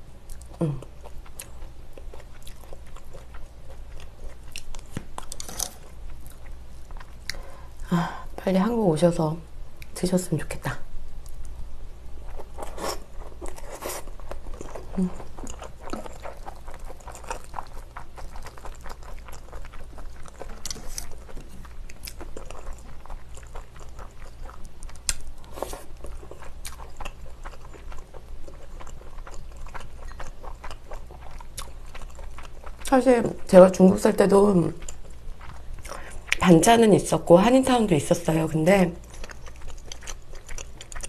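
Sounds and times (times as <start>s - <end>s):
person chewing food: 0.2s - 7.7s, 12.2s - 33.0s, 34.7s - 36.4s, 39.0s - 41.0s.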